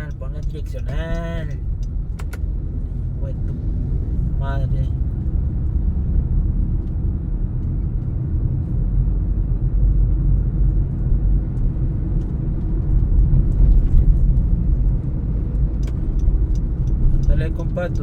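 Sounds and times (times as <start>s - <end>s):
car engine rumble: 0.0s - 18.0s
road noise: 0.0s - 18.0s.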